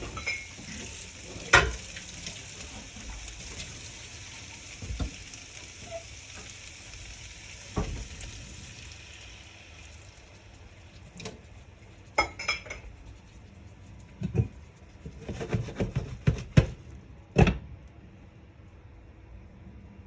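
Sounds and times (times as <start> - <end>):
cookware clinking: 0.0 - 0.6, 12.2 - 12.9.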